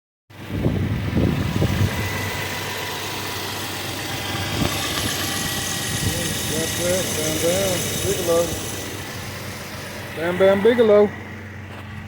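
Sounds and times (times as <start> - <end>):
car engine idling: 0.3 - 12.0.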